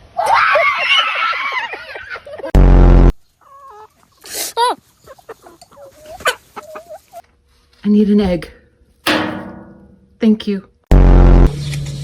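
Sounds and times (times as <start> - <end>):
chickens squawking and clucking: 0.0 - 2.5, 3.2 - 7.4
loud flat buzzing tone: 2.6 - 3.2, 10.9 - 11.7.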